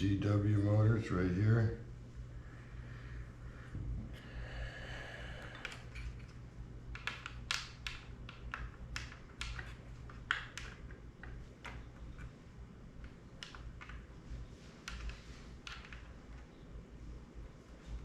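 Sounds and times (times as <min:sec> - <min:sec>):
low steady hum: 0:00.0 - 0:18.0
plastic parts clicking and tapping: 0:05.5 - 0:12.3, 0:13.0 - 0:14.1, 0:14.8 - 0:16.5.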